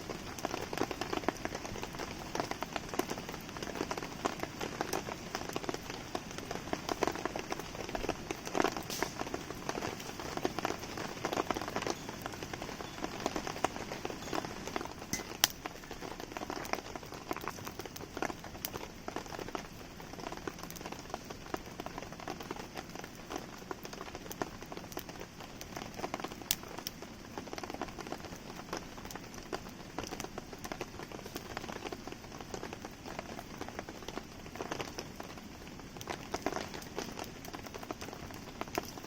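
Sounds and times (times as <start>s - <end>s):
campfire popping and crackling: 0.0s - 39.0s
steady rain falling: 0.0s - 39.0s.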